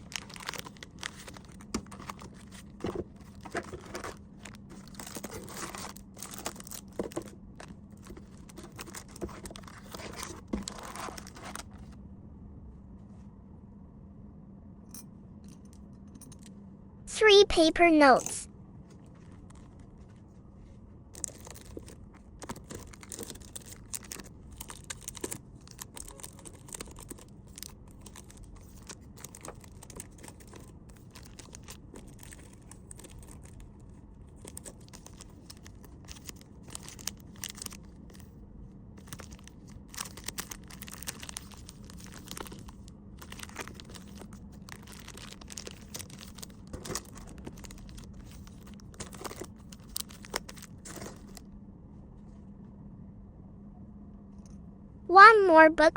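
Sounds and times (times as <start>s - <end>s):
paper and plastic packaging rustling: 0.0s - 12.0s, 18.8s - 38.4s, 39.0s - 51.5s.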